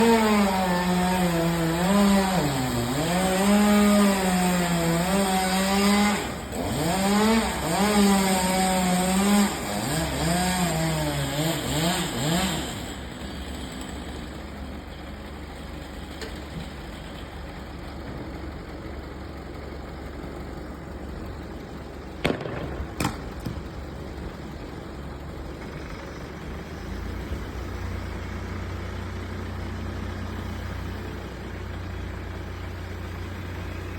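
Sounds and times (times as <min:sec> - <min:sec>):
chainsaw cutting wood: 0:00.0 - 0:14.6, 0:22.2 - 0:24.5
chainsaw idling: 0:00.0 - 0:33.9.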